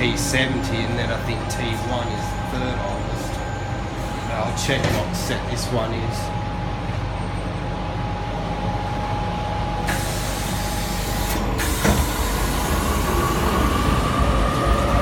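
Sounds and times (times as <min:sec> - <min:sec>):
electric train hum: 0:00.0 - 0:15.0
rising whine of train motors: 0:00.0 - 0:15.0
hiss of air: 0:09.9 - 0:13.2.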